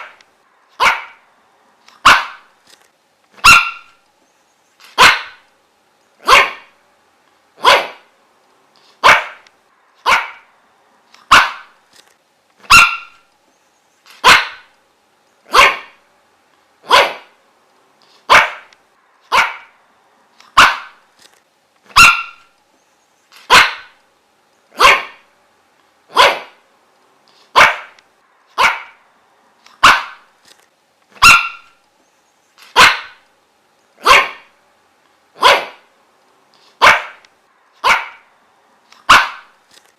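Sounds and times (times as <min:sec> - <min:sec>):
dog barking: 0:00.8 - 0:01.2, 0:02.0 - 0:02.5, 0:03.4 - 0:04.0, 0:05.0 - 0:05.4, 0:06.2 - 0:06.8, 0:07.6 - 0:08.1, 0:09.0 - 0:09.4, 0:10.0 - 0:10.5, 0:11.3 - 0:11.8, 0:12.7 - 0:13.2, 0:14.2 - 0:14.7, 0:15.5 - 0:16.0, 0:16.8 - 0:17.4, 0:18.3 - 0:18.7, 0:19.3 - 0:19.8, 0:20.5 - 0:21.0, 0:21.9 - 0:22.5, 0:23.4 - 0:24.0, 0:24.8 - 0:25.3, 0:26.1 - 0:26.6, 0:27.5 - 0:28.0, 0:28.6 - 0:29.0, 0:29.8 - 0:30.3, 0:31.2 - 0:31.8, 0:32.7 - 0:33.2, 0:34.0 - 0:34.5, 0:35.4 - 0:35.9, 0:36.8 - 0:37.2, 0:37.8 - 0:38.3, 0:39.0 - 0:39.5.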